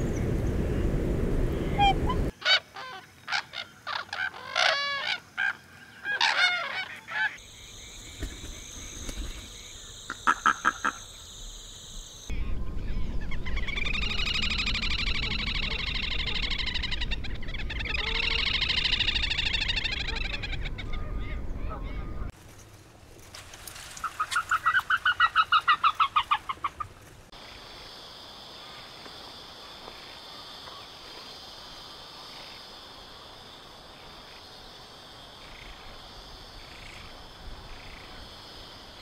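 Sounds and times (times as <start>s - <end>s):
water bird honking calls: 1.7s - 7.4s.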